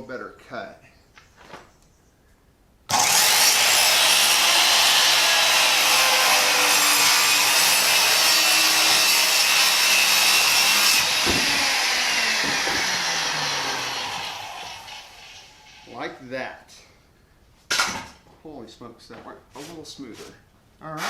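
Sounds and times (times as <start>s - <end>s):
saw knock: 2.9s - 15.8s
power saw cutting wood: 2.9s - 16.0s.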